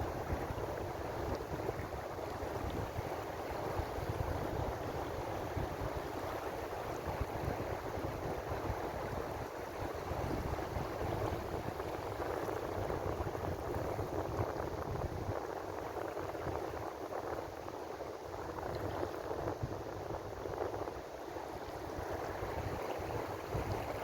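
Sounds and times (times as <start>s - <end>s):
ocean waves washing on shore: 0.0s - 24.0s.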